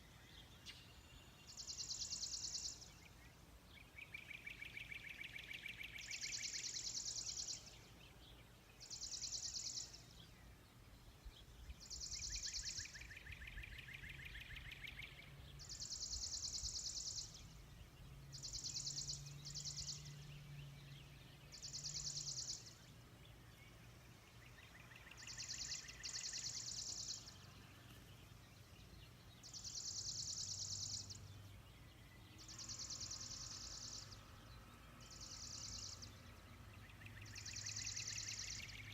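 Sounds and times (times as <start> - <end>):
lower bird trill: 24.4 - 38.9.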